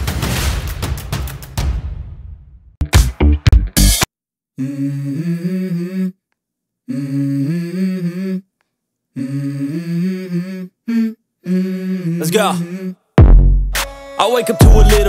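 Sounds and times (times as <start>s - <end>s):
person humming a melody: 4.6s - 6.2s, 6.9s - 8.5s, 9.2s - 13.1s, 14.5s - 15.0s.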